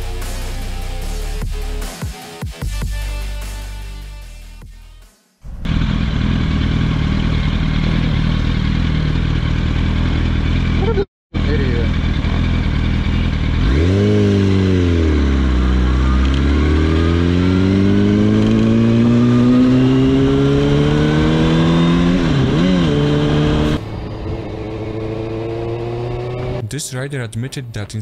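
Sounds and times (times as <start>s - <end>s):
motorcycle engine revving: 5.4s - 26.6s.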